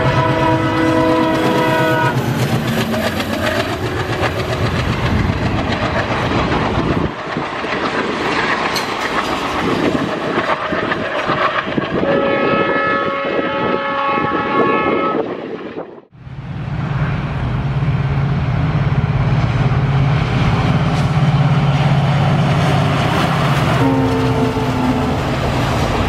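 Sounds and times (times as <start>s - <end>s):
multi-tone train horn: 0.0s - 2.4s, 11.9s - 15.5s, 23.7s - 25.5s
locomotive engine: 0.0s - 11.9s, 16.2s - 26.0s
train wheels clacking on rails: 0.0s - 12.2s.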